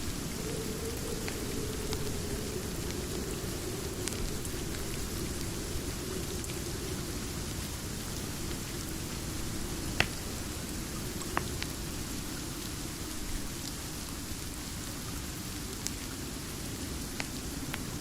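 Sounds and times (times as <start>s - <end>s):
steady rain: 0.0s - 18.0s
wood fire popping: 9.9s - 10.4s.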